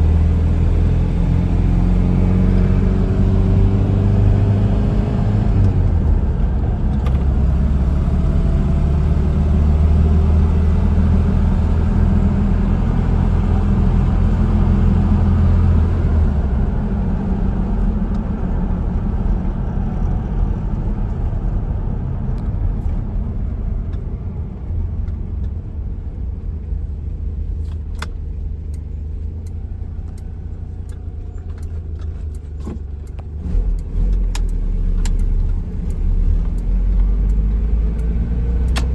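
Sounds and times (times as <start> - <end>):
pickup engine running: 0.0 - 38.9.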